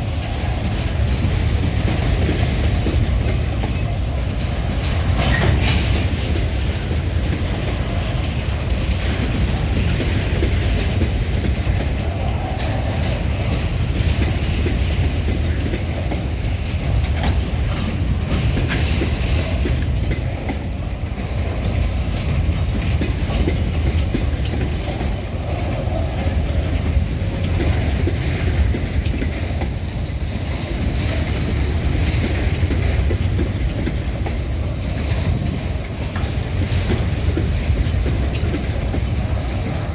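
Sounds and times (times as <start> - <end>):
freight train rumbling past: 0.0 - 39.9
wheels clattering over rails: 0.0 - 39.9.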